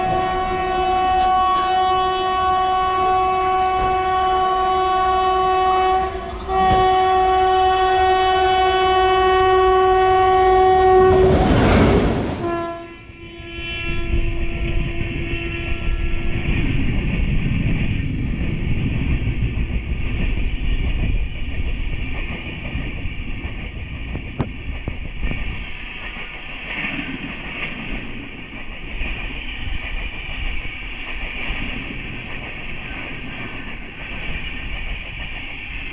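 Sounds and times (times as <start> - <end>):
train wheels clickety-clack: 0.0 - 2.0, 3.2 - 4.4, 5.7 - 7.4, 14.4 - 35.9
train horn blasts: 0.0 - 16.4
locomotive rushing past: 10.2 - 13.1.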